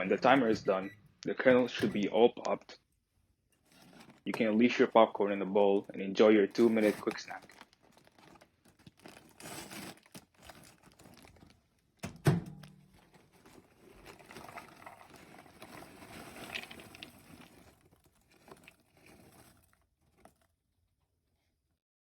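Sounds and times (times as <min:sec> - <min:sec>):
popcorn poured into a bowl: 0:13.3 - 0:20.4.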